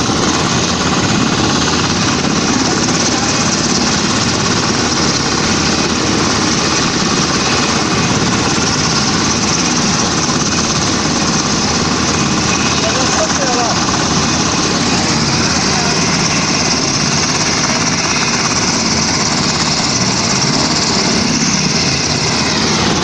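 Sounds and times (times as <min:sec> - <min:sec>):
helicopter rotor chopping: 0:00.0 - 0:23.0.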